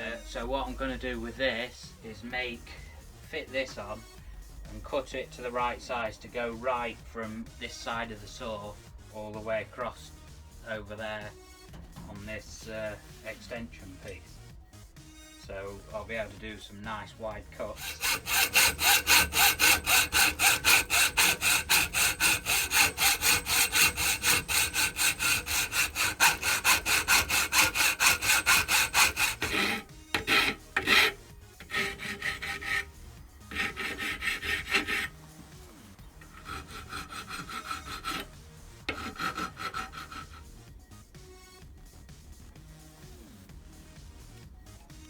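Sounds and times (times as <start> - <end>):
hand saw cutting bar: 17.6 - 35.2, 36.2 - 40.6.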